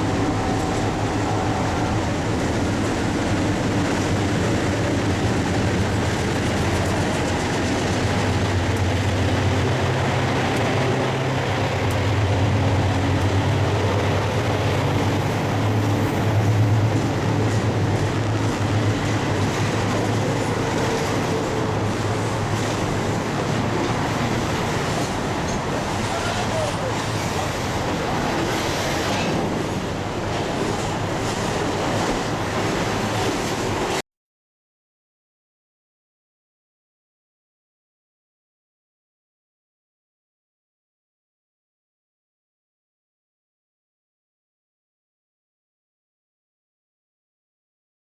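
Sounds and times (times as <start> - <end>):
locomotive engine hum: 0.0 - 34.0
wagons clattering on track: 3.6 - 34.0.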